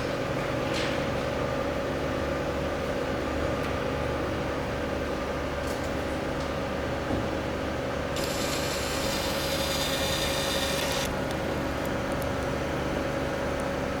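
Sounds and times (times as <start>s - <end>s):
welding power supply humming: 8.1s - 13.9s.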